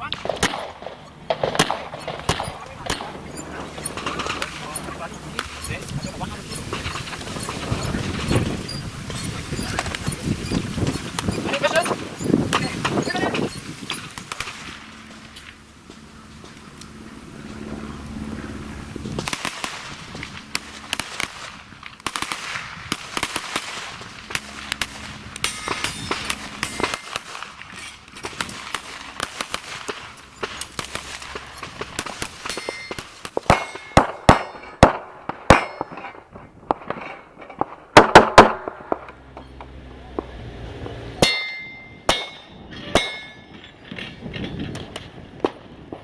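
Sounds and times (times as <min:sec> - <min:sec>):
handgun shots: 0:00.2 - 0:03.2
metallic clangs: 0:25.4 - 0:28.5, 0:30.2 - 0:34.8, 0:41.2 - 0:44.8.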